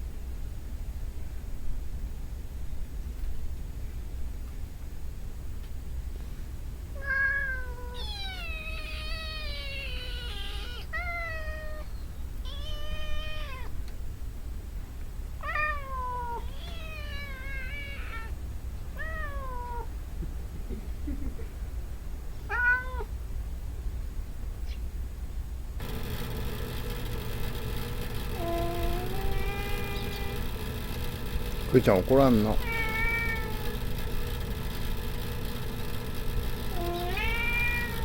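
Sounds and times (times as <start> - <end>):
cats meowing: 7.0 - 13.8, 15.4 - 18.4, 19.0 - 19.9, 22.5 - 23.1, 28.3 - 30.5, 32.4 - 33.8, 36.7 - 38.0.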